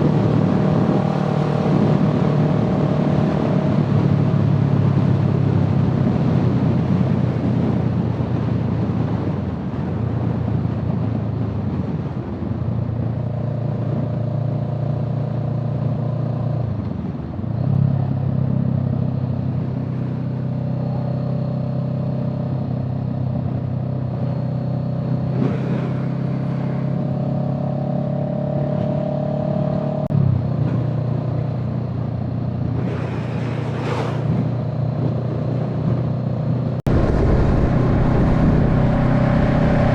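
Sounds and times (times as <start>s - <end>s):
car engine running: 36.8s - 39.9s.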